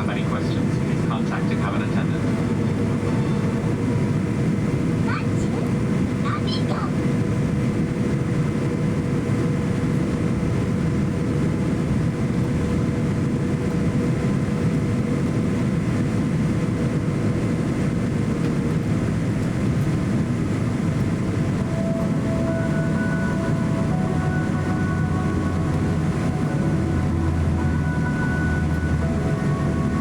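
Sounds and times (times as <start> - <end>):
airliner cabin rumble: 0.0 - 30.0
jet engine whine: 0.0 - 30.0.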